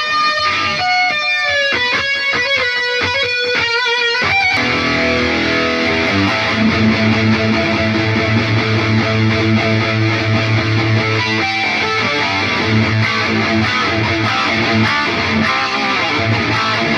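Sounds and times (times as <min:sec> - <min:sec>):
electric guitar single picked notes: 0:00.0 - 0:16.9
distorted guitar chord: 0:04.3 - 0:16.9.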